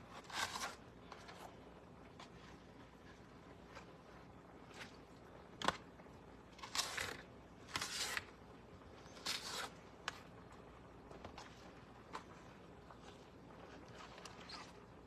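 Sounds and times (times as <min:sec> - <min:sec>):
knife scraping through cabbage: 0:00.0 - 0:01.5, 0:06.6 - 0:08.3, 0:09.0 - 0:09.8.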